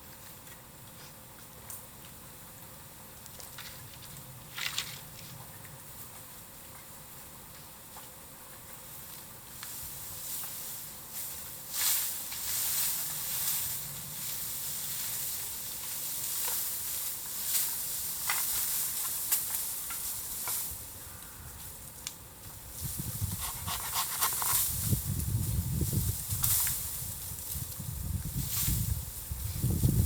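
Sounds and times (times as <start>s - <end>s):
bamboo crackles and pops: 0.0s - 29.2s
low rustling noise: 8.8s - 21.0s, 21.6s - 30.0s
fire hissing and sizzling: 8.8s - 30.0s.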